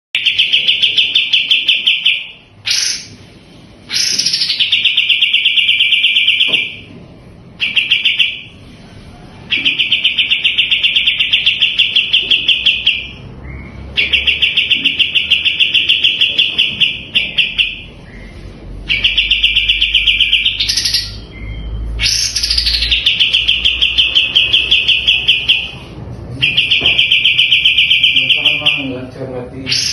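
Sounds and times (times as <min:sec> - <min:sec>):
songbird singing rapid notes: 0:18.9 - 0:25.7.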